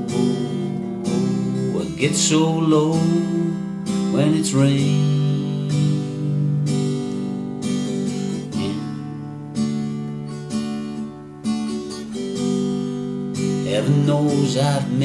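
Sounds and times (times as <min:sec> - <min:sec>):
person singing slow song: 0:00.0 - 0:07.4, 0:08.2 - 0:09.8, 0:13.5 - 0:15.0
acoustic guitar strumming: 0:00.0 - 0:15.0.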